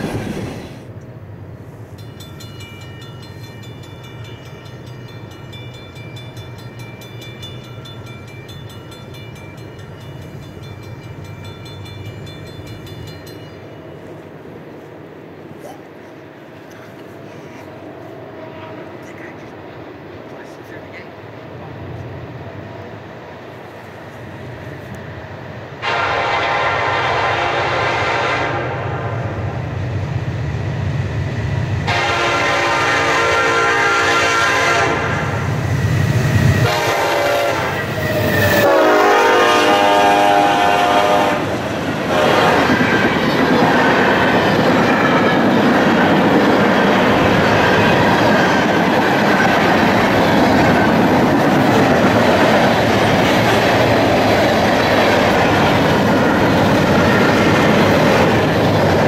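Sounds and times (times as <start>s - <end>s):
train wheels on rails: 0.0s - 59.0s
locomotive horn blasts: 25.8s - 28.8s, 31.9s - 35.3s, 36.6s - 37.9s, 38.6s - 41.5s, 42.1s - 42.9s.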